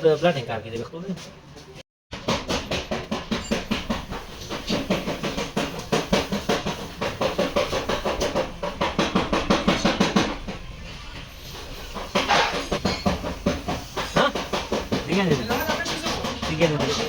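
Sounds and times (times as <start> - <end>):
hammer on sheet metal: 2.1 - 10.6, 12.1 - 17.0.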